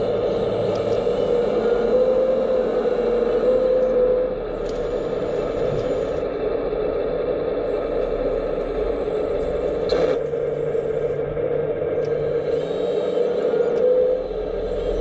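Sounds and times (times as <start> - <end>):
hydraulic pump whining: 0.0 - 6.4, 11.8 - 15.0.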